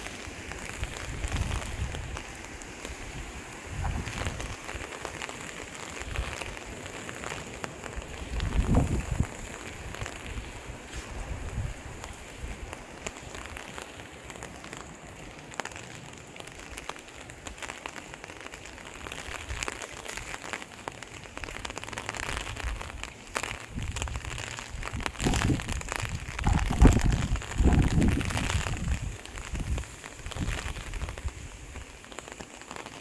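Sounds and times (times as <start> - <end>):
steady rain: 0.0 - 33.0
wind buffeting microphone: 0.6 - 4.9, 7.8 - 13.6, 22.3 - 31.9.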